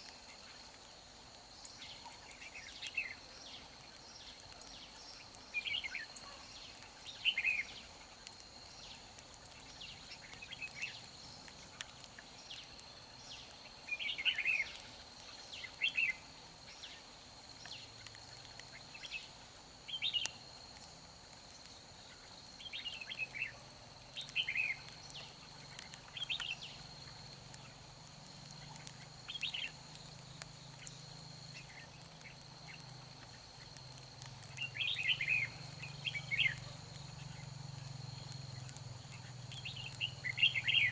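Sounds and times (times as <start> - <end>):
birds singing warbling phrases: 34.6 - 37.4, 39.2 - 40.9.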